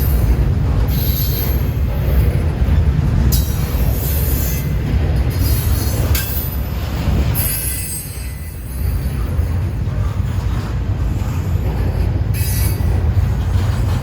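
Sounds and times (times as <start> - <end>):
freight train rumbling on rails: 0.0 - 14.0
high wheel squeal: 7.4 - 8.8.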